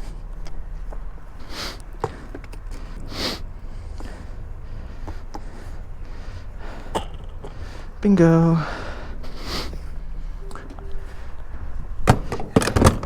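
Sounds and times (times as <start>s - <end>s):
low rumble: 0.0s - 13.0s
person sniffing: 3.1s - 4.4s, 8.8s - 10.2s.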